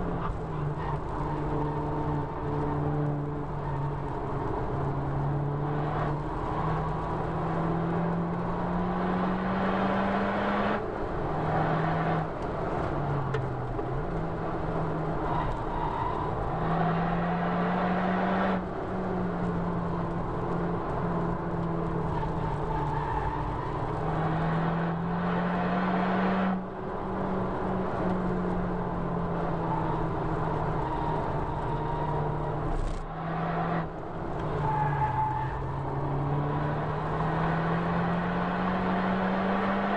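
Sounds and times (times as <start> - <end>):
tyre and road noise: 0.0 - 39.9
car engine under power: 16.4 - 39.9.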